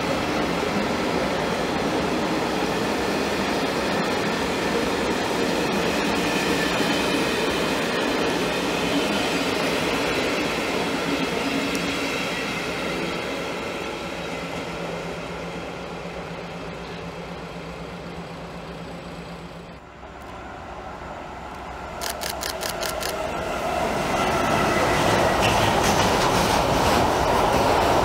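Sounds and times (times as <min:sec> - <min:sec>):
train coaches rolling on rails: 0:00.0 - 0:28.0
sharp clicks of wheels: 0:21.5 - 0:23.2.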